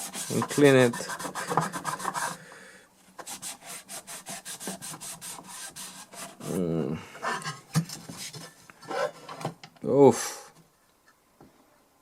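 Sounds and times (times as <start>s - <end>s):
scrubbing a circuit board: 0.0s - 2.4s, 3.2s - 6.6s.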